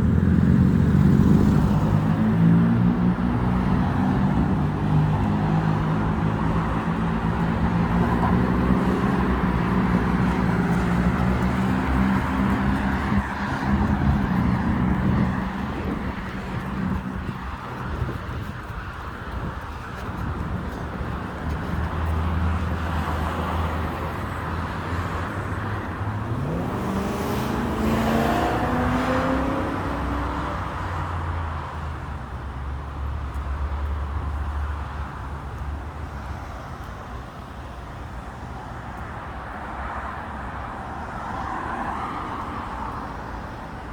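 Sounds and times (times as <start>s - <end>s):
vehicle engine hum: 0.0s - 40.2s
traffic rushing noise: 0.0s - 43.9s
car accelerating past: 26.0s - 30.9s.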